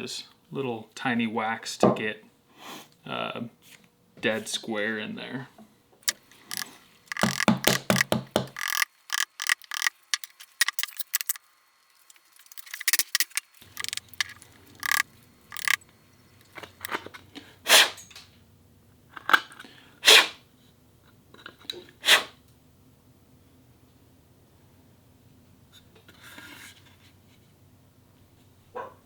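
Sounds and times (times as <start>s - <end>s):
mallet tapping wood chisel: 7.2s - 9.2s.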